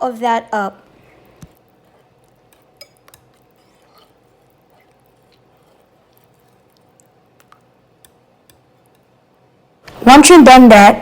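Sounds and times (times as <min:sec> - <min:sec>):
batter squelching: 0:00.8 - 0:09.2
utensil clinking against bowl: 0:01.8 - 0:09.1.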